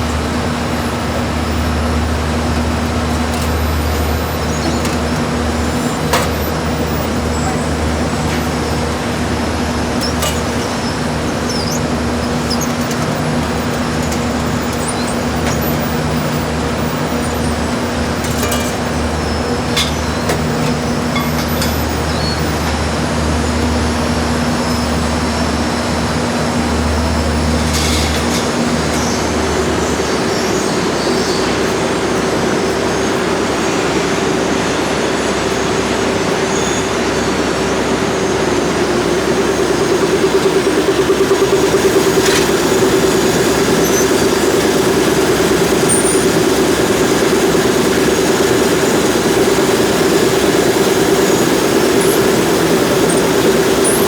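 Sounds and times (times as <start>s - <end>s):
factory machinery running: 0.0s - 54.0s.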